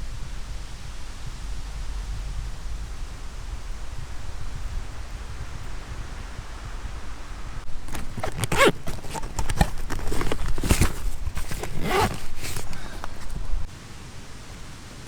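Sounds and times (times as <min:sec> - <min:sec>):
footsteps on ground: 0:05.0 - 0:13.7.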